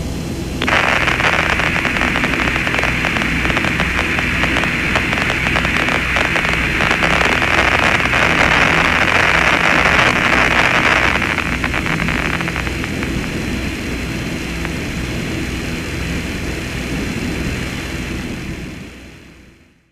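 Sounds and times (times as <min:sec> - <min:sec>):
low hum: 0:00.0 - 0:19.0
radio static hiss: 0:00.5 - 0:16.9
faint crackle: 0:00.6 - 0:15.2.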